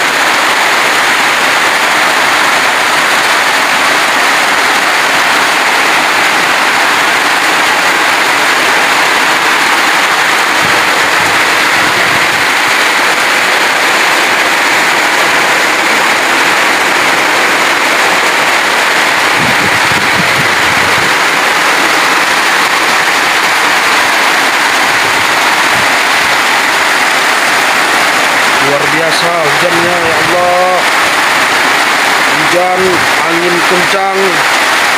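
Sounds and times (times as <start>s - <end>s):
heavy rain pouring: 0.0s - 34.9s
low rumbles of wind: 1.8s - 28.8s.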